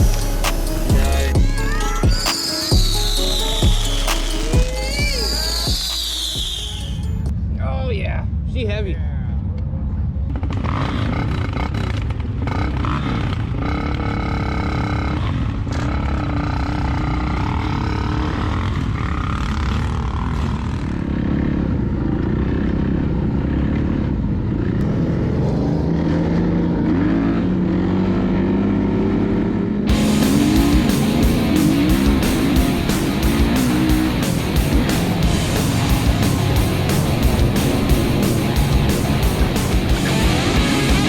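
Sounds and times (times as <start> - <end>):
dirt bike engine revving: 10.6 - 41.0.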